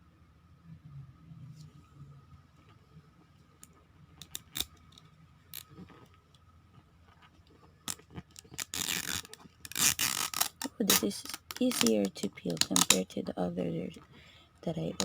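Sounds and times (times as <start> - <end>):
plastic wrapping crinkling: 7.9 - 13.1.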